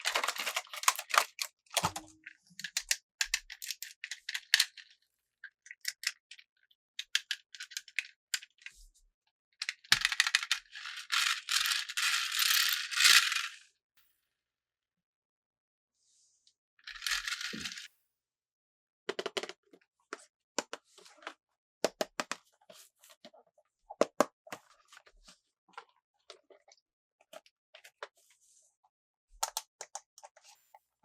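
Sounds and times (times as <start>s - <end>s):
packaging crackling and clicking: 0.0s - 3.0s.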